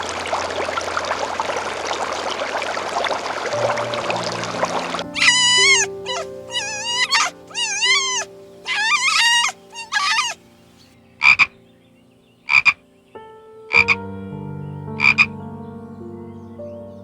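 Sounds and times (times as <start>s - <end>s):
sustained background music: 3.6s - 17.0s
frog croaking: 3.8s - 11.6s, 12.5s - 12.8s, 13.7s - 14.0s, 15.0s - 15.3s
high wavering animal calls: 5.0s - 10.5s, 11.2s - 11.5s, 12.5s - 12.8s, 13.7s - 14.0s, 15.0s - 15.3s.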